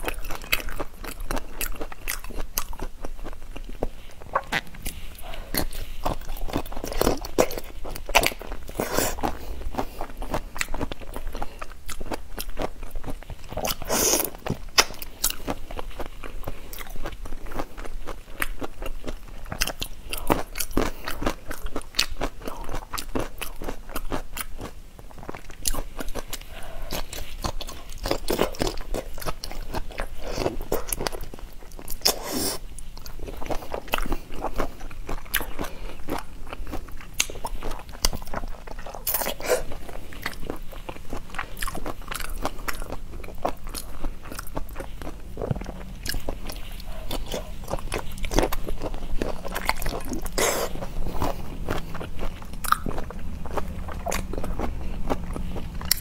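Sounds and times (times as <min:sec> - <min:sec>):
person chewing and crunching: 0:00.0 - 0:56.0.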